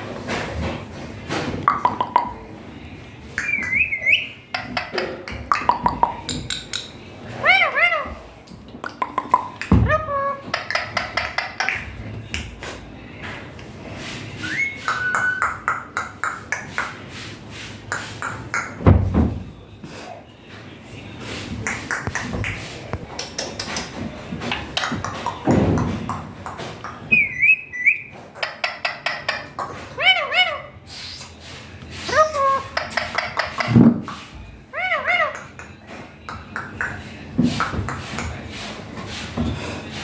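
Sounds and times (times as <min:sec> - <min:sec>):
parakeet whistling: 0:03.4 - 0:04.4, 0:14.4 - 0:15.7, 0:27.1 - 0:28.1.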